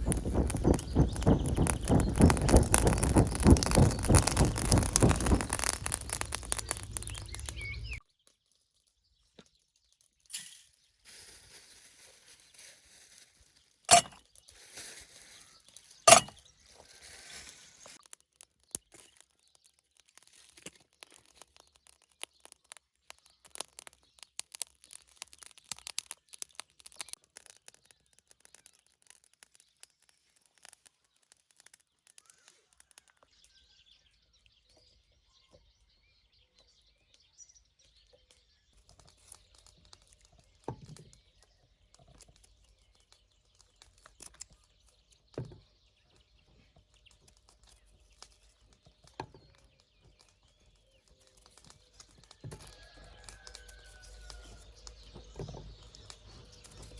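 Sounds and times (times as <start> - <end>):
dense quick clicking: 0.0 - 8.0
short low thumps: 0.0 - 8.0
faint bird chirps: 49.3 - 56.9.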